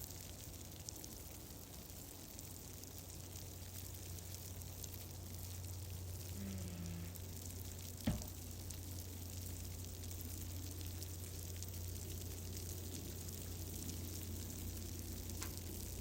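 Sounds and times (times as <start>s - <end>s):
wood fire crackling: 0.0s - 16.0s
low hum: 6.1s - 8.8s.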